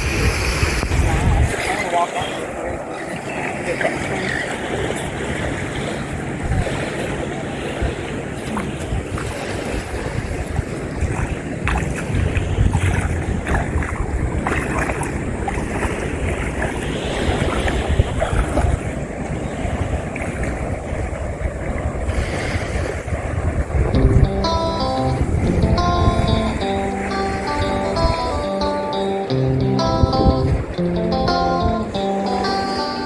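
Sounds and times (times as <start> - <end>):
wind buffeting the microphone: 0.0 - 2.9, 4.2 - 28.3
moving water and small waves: 0.0 - 33.0.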